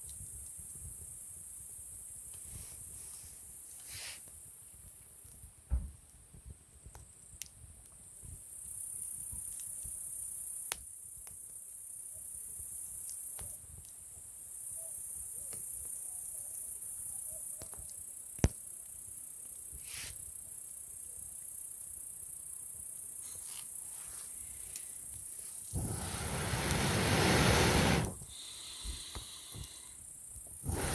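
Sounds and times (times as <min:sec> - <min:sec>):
campfire crackling and popping: 0:24.7 - 0:29.8, 0:30.6 - 0:30.9.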